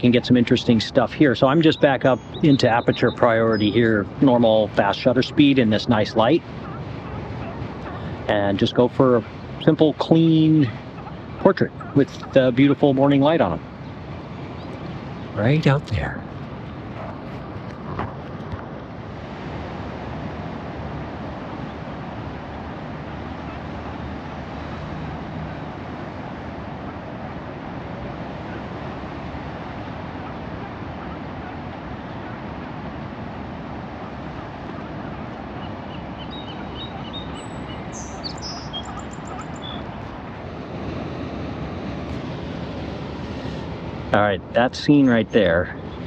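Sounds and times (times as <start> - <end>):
ocean surf: 0.0 - 46.0
wind: 0.0 - 46.0
high bird chirps: 1.6 - 3.8, 35.5 - 40.1.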